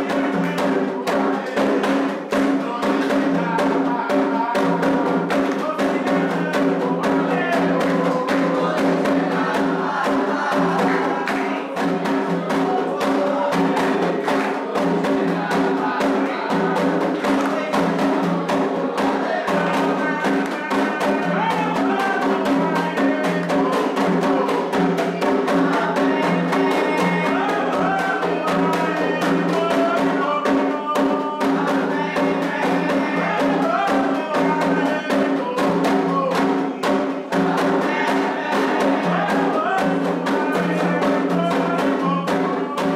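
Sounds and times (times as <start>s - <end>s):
hand drums beating fast rhythm: 0.0s - 42.9s
people singing: 0.0s - 42.9s.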